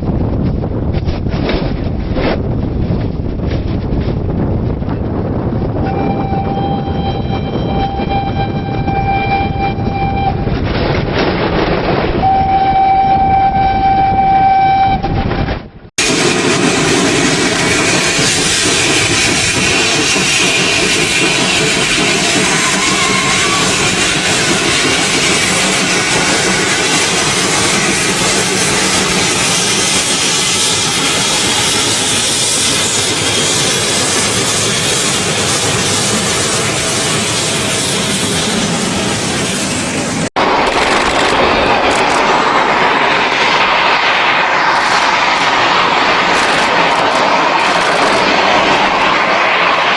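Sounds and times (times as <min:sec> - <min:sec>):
rumble of moving train: 0:00.0 - 0:49.9
steam locomotive running: 0:00.0 - 0:49.9
steam locomotive whistle blasts: 0:05.8 - 0:10.5, 0:12.2 - 0:15.4, 0:21.3 - 0:26.4.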